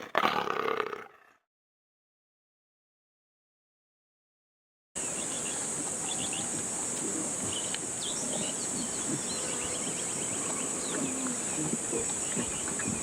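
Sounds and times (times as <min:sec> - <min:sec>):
insects chorus: 0:05.0 - 0:13.0.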